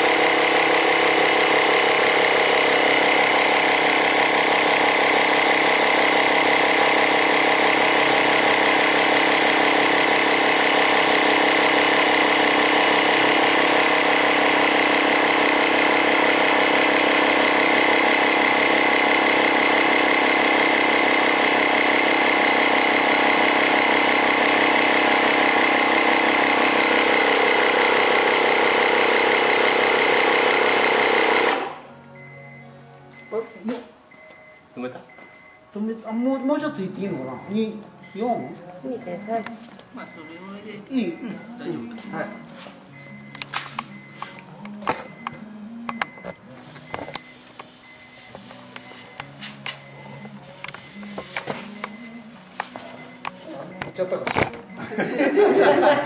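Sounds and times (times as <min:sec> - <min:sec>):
small air compressor running: 0:00.0 - 0:31.8.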